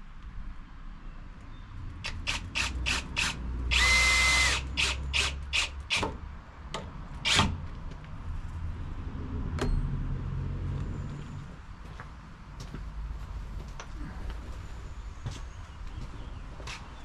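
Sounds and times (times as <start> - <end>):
power tool whine: 2.1 - 5.7.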